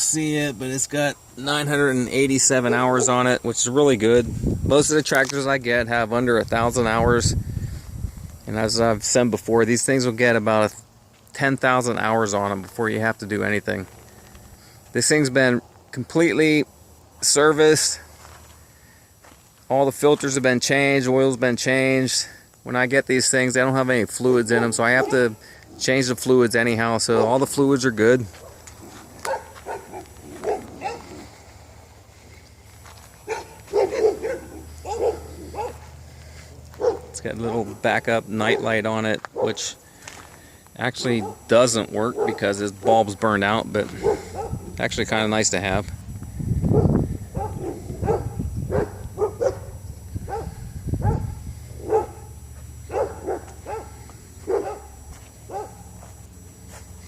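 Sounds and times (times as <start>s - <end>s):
low steady hum: 0.0s - 57.0s
dogs yapping barks: 2.5s - 3.2s, 24.5s - 25.3s, 28.4s - 31.3s, 33.2s - 36.0s, 36.7s - 37.8s, 39.3s - 39.6s, 41.0s - 43.0s, 44.0s - 44.7s, 46.7s - 56.0s.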